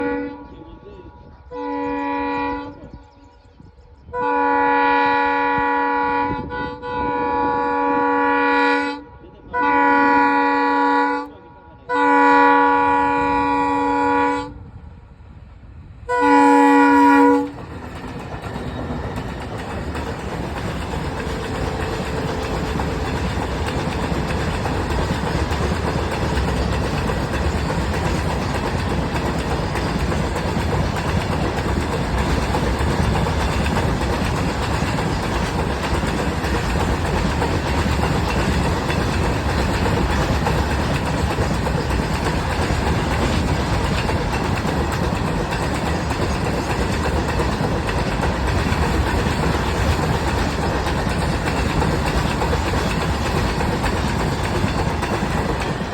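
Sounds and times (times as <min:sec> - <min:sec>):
diesel locomotive horn: 0:00.0 - 0:00.8, 0:01.5 - 0:03.1, 0:04.1 - 0:14.7, 0:16.1 - 0:17.6
freight train engine rumble: 0:00.0 - 0:55.9
train wheels clattering on rails: 0:17.2 - 0:55.9.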